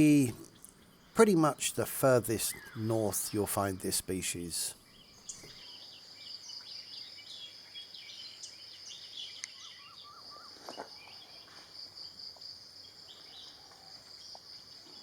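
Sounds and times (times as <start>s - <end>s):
repeated bird call notes: 0.0s - 5.5s.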